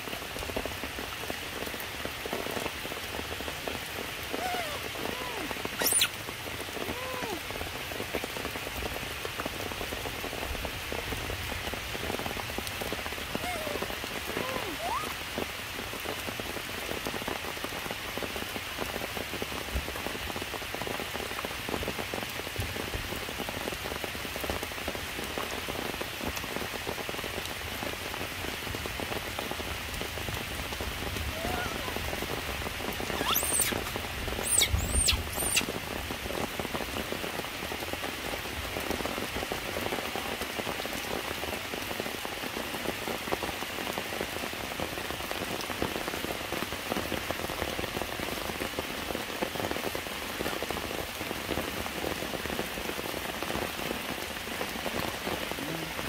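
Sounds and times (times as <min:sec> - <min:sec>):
rain on foliage and rocks: 0:00.0 - 0:56.0
high sweeping squeaks: 0:05.8 - 0:06.1, 0:33.1 - 0:35.6.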